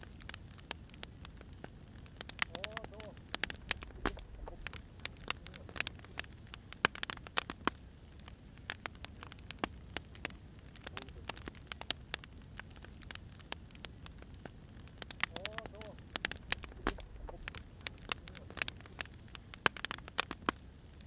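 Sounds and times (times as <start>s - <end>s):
firewood crackling and popping: 0.0s - 21.0s
low steady rumble: 3.1s - 6.6s, 13.8s - 19.5s.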